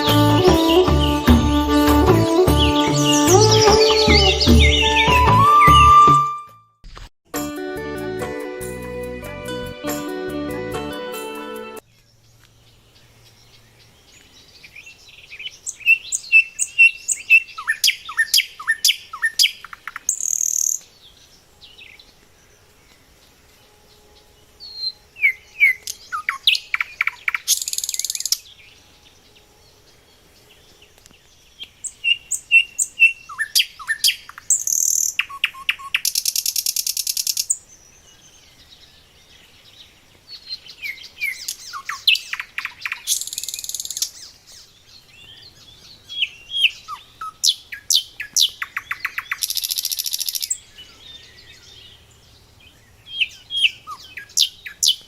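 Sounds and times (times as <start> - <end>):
songbird singing with buzzy trill: 0.0 - 6.6, 11.8 - 55.0.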